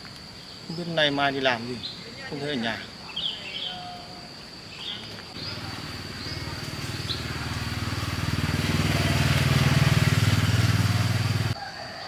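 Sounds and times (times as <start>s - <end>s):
high insect whine: 0.0s - 12.0s
small motorcycle engine running: 5.4s - 11.6s.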